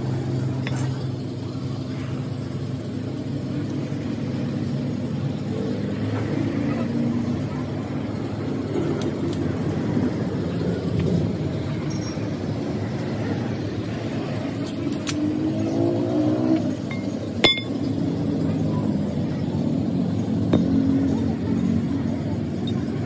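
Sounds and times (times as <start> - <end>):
vehicle engine running: 0.0 - 23.0
sharp metallic clink: 11.8 - 12.3, 16.8 - 18.1.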